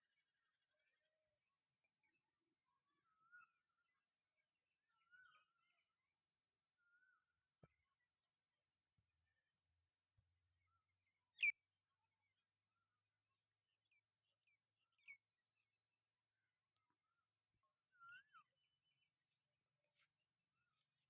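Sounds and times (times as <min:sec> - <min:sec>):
bird chirps: 0:10.7 - 0:11.7, 0:16.8 - 0:19.1.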